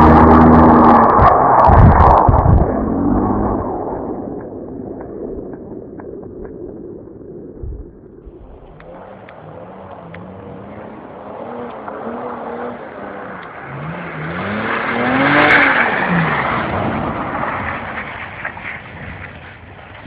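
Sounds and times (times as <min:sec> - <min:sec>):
car engine revving: 0:00.0 - 0:05.1, 0:08.2 - 0:19.0.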